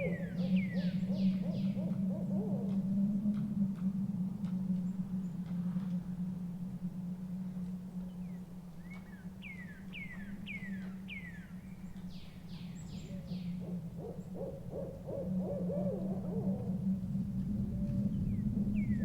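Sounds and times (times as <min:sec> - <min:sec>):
owl quavering hoot: 0:00.0 - 0:03.9, 0:08.2 - 0:19.0
low drone: 0:00.0 - 0:19.0.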